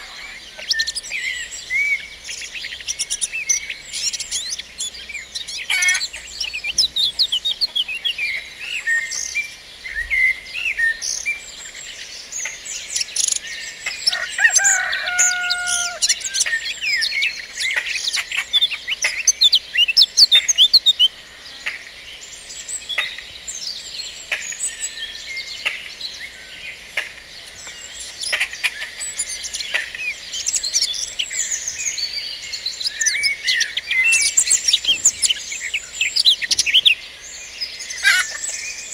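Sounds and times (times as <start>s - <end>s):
songbirds chirping and singing: 0.0s - 38.9s
lower drawn-out bird call: 14.1s - 16.7s.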